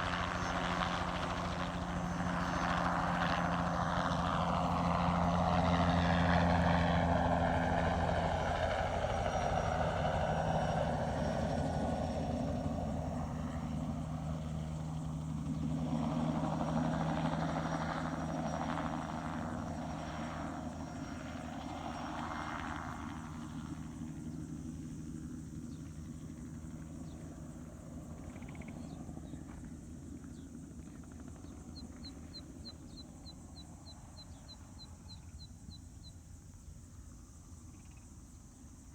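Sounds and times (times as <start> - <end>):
helicopter flying past: 0.0 - 38.9
small bird chirping: 28.3 - 29.0, 31.4 - 36.2.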